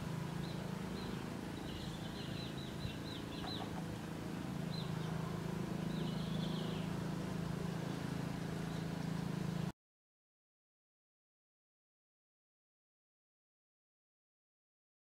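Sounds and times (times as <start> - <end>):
low steady hum: 0.0 - 9.7
bird chirping: 0.2 - 4.0, 4.7 - 7.0, 8.6 - 9.1.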